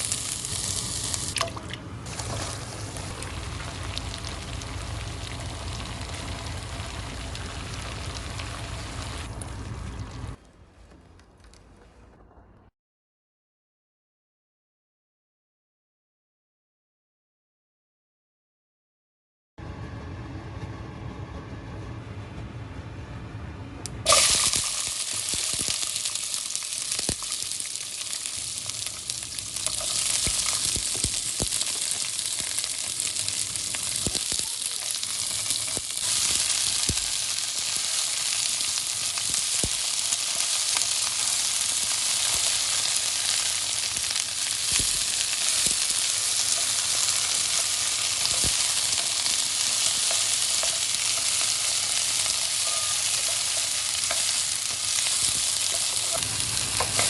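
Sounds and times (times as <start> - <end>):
food sizzling in a hot pan: 0.0 - 1.4, 2.1 - 9.3, 24.1 - 57.0.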